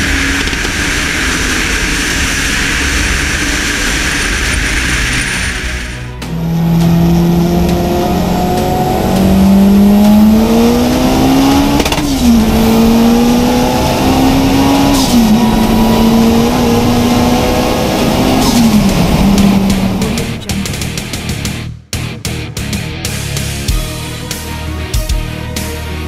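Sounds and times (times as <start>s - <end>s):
car engine accelerating hard: 0.0s - 21.6s.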